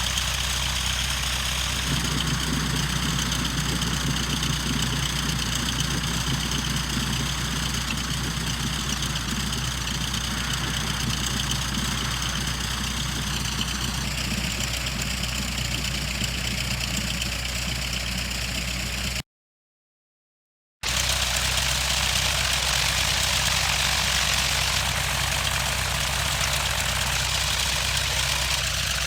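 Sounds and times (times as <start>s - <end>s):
small plane engine idling: 0.0s - 19.2s, 20.8s - 29.0s.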